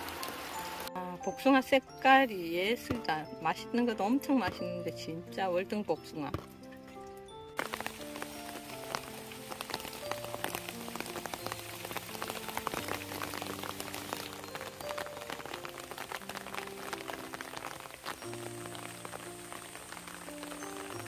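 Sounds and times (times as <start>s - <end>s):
steady rain pattering: 0.0s - 0.9s, 7.0s - 21.0s
soft ambient music: 0.0s - 21.0s.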